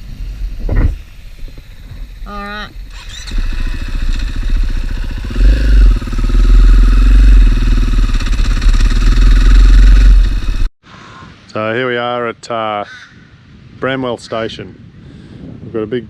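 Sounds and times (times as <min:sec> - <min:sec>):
motorcycle engine running: 0:03.0 - 0:10.7.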